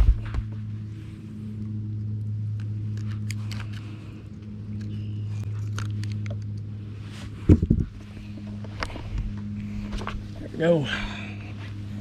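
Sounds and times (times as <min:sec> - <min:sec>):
electric boat motor humming: 0:00.0 - 0:12.0.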